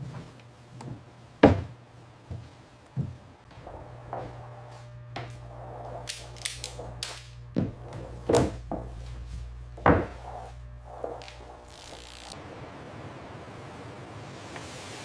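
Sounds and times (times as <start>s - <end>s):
steady low hum: 3.5s - 13.8s
sharp knocks and clunks: 6.9s - 11.2s.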